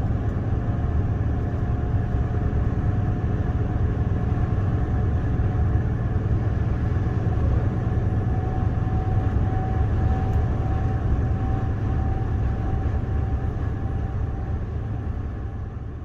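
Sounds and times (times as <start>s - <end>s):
truck engine running: 0.0s - 15.9s.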